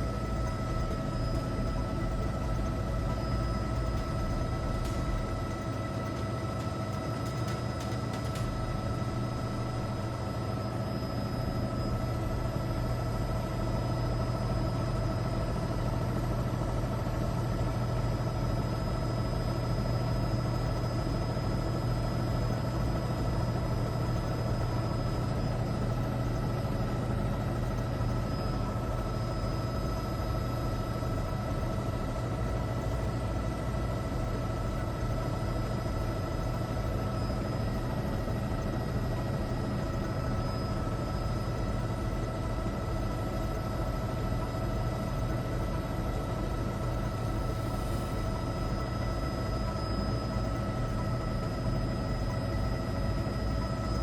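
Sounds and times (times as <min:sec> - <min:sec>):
helicopter cabin drone: 0:00.0 - 0:54.0.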